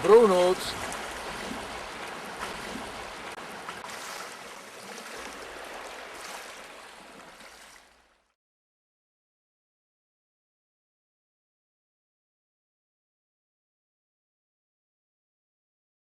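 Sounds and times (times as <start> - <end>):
rushing water: 0.0 - 8.4.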